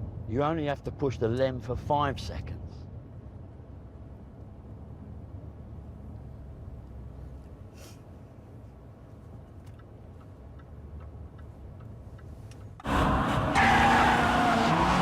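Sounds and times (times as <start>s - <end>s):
loud engine and tyre noise: 12.8s - 15.0s.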